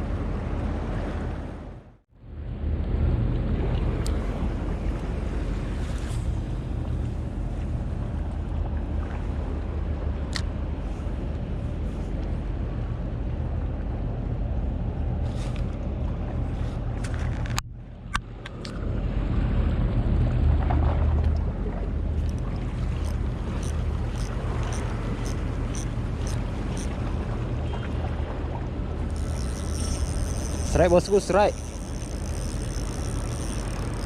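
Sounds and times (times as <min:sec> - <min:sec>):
water noise: 0:00.0 - 0:34.0
wind: 0:00.0 - 0:34.0
boat motor humming: 0:03.8 - 0:34.0
sharp clicks: 0:29.1 - 0:34.0.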